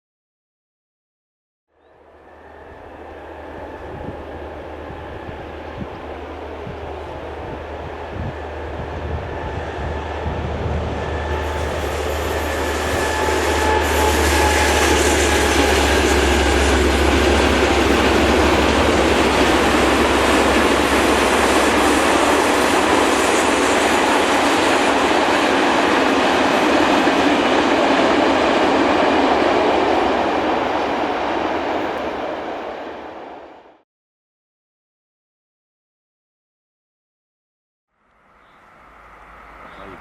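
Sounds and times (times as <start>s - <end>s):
train wheels rolling on rails: 2.3s - 33.6s.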